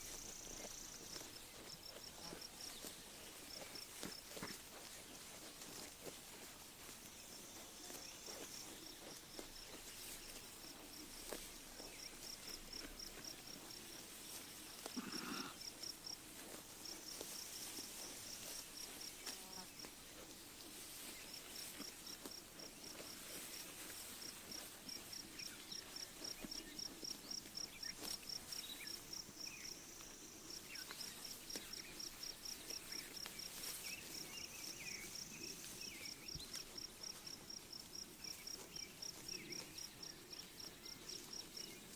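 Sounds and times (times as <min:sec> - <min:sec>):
insect chirping: 0:00.0 - 0:02.0.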